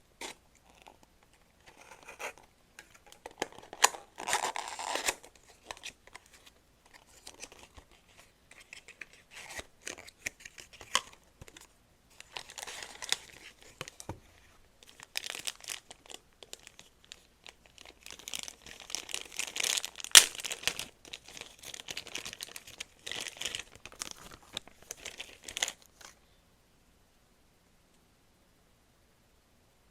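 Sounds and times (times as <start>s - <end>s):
wrapping crinkling: 12.2s - 14.1s, 14.8s - 26.2s
bag being torn open: 18.2s - 20.8s.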